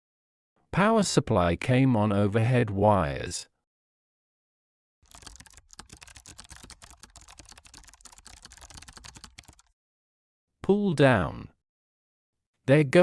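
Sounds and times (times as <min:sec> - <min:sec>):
fast keyboard typing: 0:05.0 - 0:09.7.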